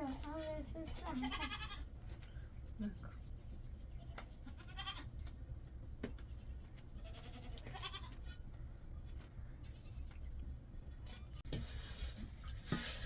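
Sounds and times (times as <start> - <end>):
goat bleating: 1.2 - 1.8, 4.6 - 5.1, 7.0 - 8.2.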